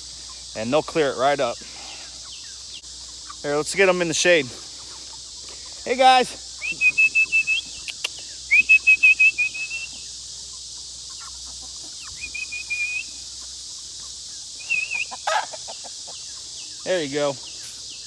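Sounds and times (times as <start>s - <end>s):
person whistling short notes: 8.5s - 9.9s.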